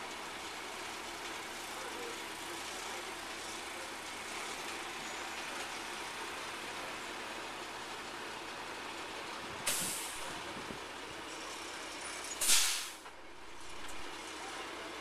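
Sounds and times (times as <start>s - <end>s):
heavy truck engine running: 0.0s - 15.0s
broad even hiss: 9.7s - 10.3s, 12.4s - 13.0s.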